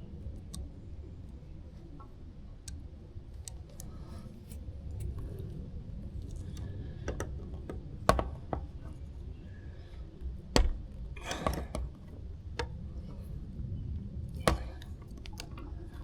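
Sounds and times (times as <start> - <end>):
low steady rumble: 0.0 - 16.0
clicks and knocks of parts handled: 2.6 - 9.2, 9.8 - 13.3, 14.3 - 16.0.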